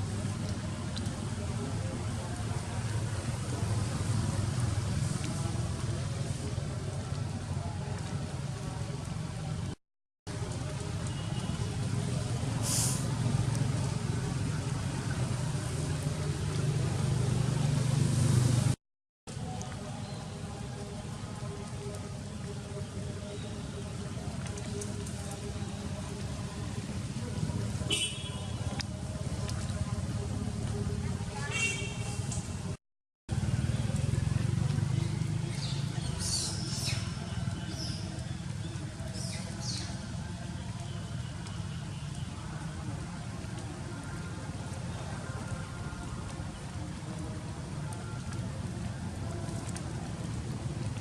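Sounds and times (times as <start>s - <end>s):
brief high hiss: 12.6s - 13.1s.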